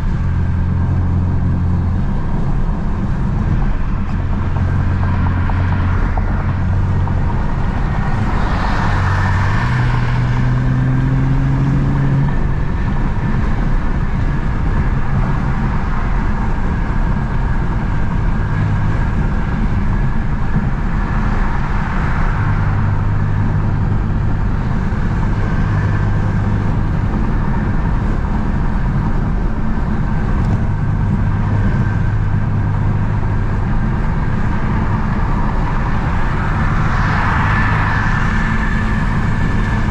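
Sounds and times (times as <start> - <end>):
car engine hum from cabin: 0.0 - 39.9
tyre and road noise: 0.0 - 39.9.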